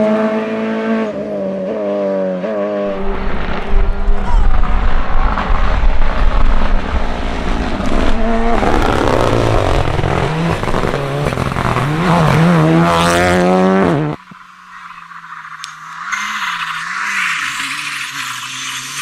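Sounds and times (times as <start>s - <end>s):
rally car engine revving: 0.0s - 19.0s
road and tyre noise: 0.0s - 19.0s.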